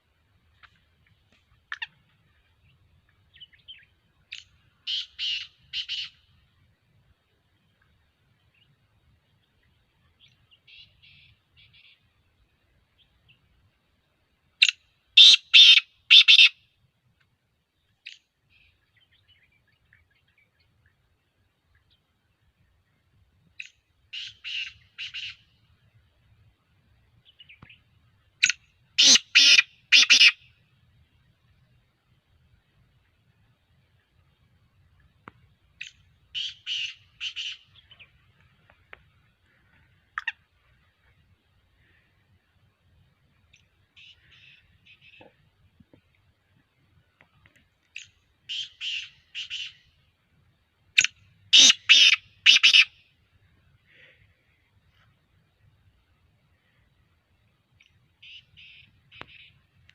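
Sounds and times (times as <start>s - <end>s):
francolin harsh calls: 3.4s - 6.3s, 14.6s - 16.7s, 23.6s - 25.6s, 28.4s - 30.6s, 35.8s - 38.1s, 44.0s - 45.2s, 48.0s - 49.9s, 51.0s - 53.1s, 57.8s - 59.6s.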